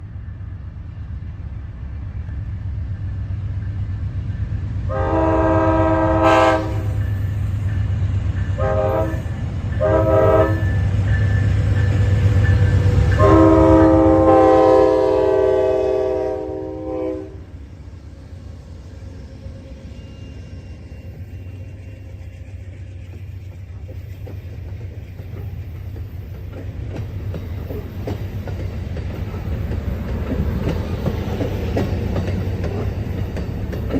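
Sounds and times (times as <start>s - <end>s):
train wheels clicking on rails: 0.0s - 16.2s, 18.9s - 33.9s
train air horn blasts: 4.9s - 7.1s, 8.6s - 10.9s, 13.1s - 17.5s.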